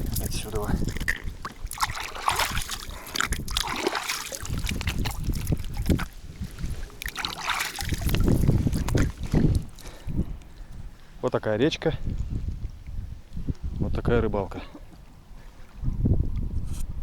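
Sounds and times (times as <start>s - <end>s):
river water splashing and trickling: 0.0s - 11.1s
wind rumbling on microphone: 0.0s - 17.0s.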